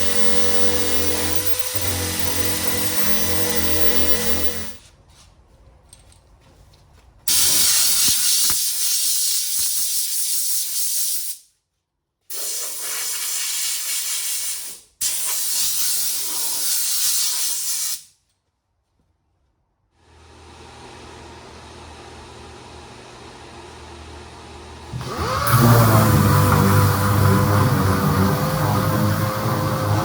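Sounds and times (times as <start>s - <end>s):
sander hissing on metal panel: 0.0s - 4.8s, 25.0s - 30.0s.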